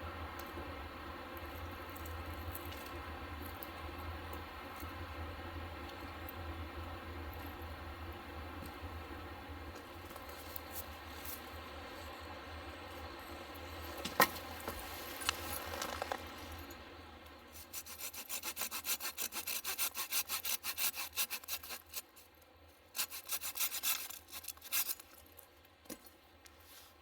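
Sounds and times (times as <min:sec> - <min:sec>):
hand saw cutting wood: 0:17.6 - 0:22.2, 0:23.0 - 0:25.1.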